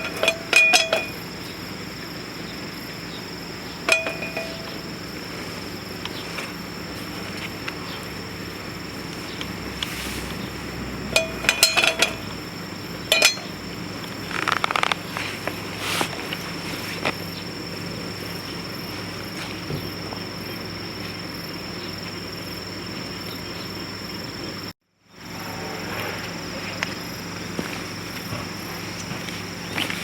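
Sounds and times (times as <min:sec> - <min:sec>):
metal cookware clinking: 0:00.0 - 0:01.2, 0:03.9 - 0:04.9, 0:11.1 - 0:12.4, 0:13.1 - 0:13.6
high-pitched insect drone: 0:00.0 - 0:30.0.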